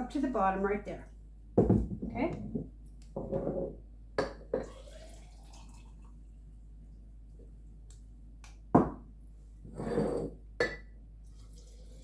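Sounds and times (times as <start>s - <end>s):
kitchen item knocking on counter: 1.6s - 2.6s.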